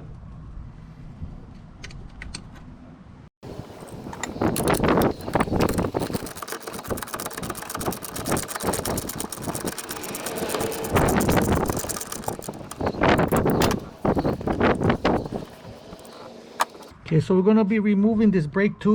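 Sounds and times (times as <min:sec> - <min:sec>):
hand ratchet clicking: 0:03.5 - 0:16.9.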